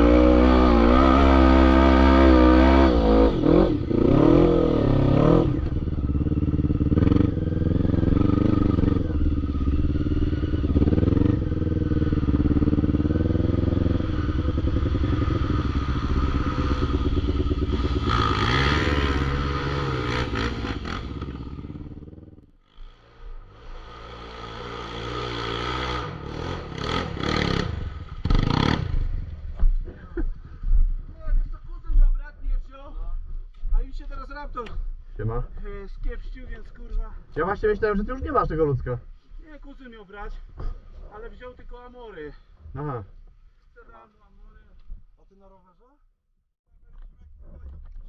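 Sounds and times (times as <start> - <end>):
atv engines revving: 0.0 - 30.1.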